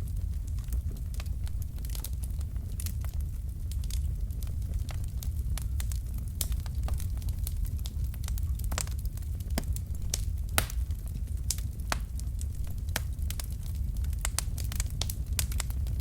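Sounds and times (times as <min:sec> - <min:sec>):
fire crackling and popping: 0:00.0 - 0:16.0
low rumble of flames: 0:00.0 - 0:16.0.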